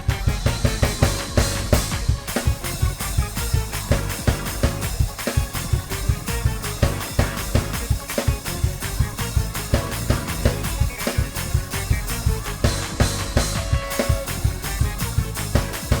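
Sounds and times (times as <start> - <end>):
fast drum kit groove: 0.0 - 16.0
held keyboard chords: 0.0 - 16.0.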